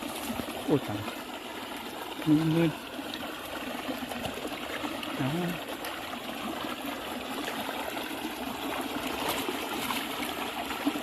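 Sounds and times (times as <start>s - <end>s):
water running and trickling: 0.0s - 11.0s.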